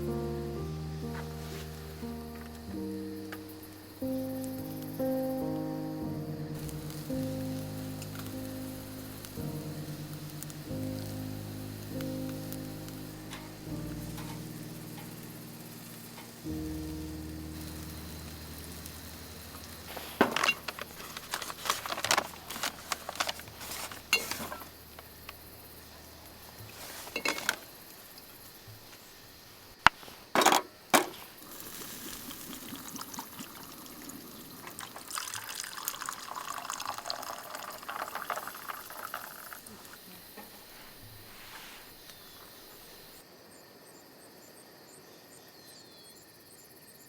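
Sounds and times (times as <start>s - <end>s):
camp cookware clinking: 12.3s - 16.4s, 17.6s - 27.7s, 30.3s - 39.6s
liquid pouring: 31.4s - 39.7s.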